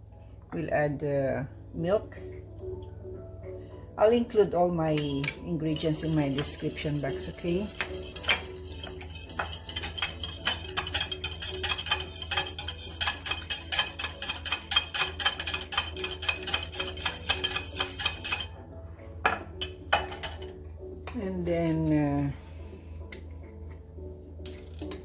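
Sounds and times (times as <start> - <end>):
utensil beating eggs in bowl: 5.7 - 18.6.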